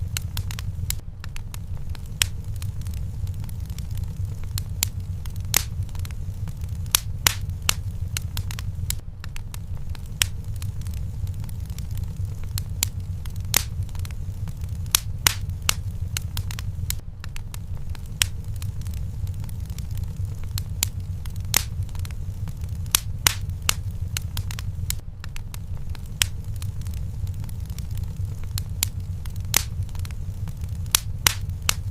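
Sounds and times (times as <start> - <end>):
low rumble: 0.0 - 31.9
wood fire crackling and popping: 0.0 - 31.9.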